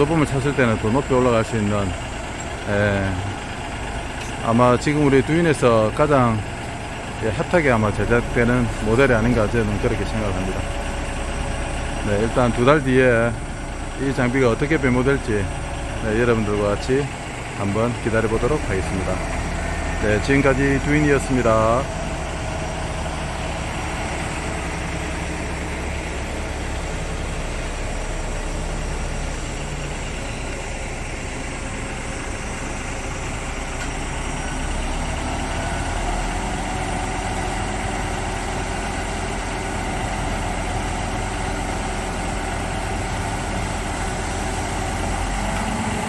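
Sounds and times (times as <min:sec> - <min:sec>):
diesel engine idling: 0:00.0 - 0:46.0.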